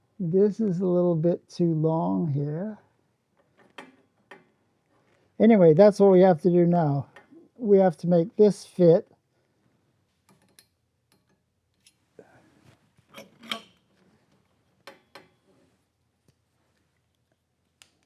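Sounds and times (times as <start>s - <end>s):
steel frame parts clicking and knocking: 3.4s - 5.2s, 10.2s - 12.0s, 13.0s - 15.6s.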